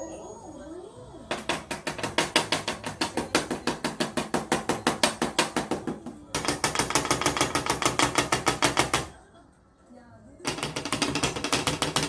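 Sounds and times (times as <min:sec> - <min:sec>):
rapid mechanical ratchet clicking: 0:10.5 - 0:12.0.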